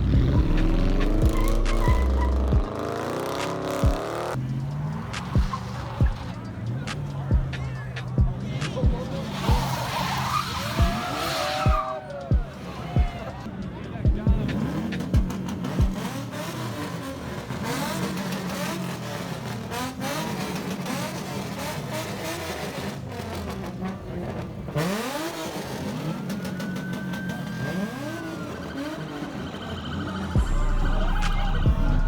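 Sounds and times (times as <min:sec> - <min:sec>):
car engines revving: 0:00.0 - 0:32.0.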